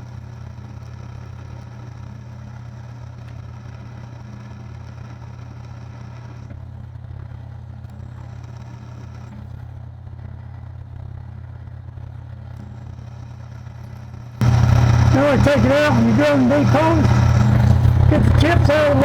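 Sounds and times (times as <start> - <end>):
drill bit boring into steel: 14.4 - 19.0
machine tool motor humming: 14.4 - 19.0.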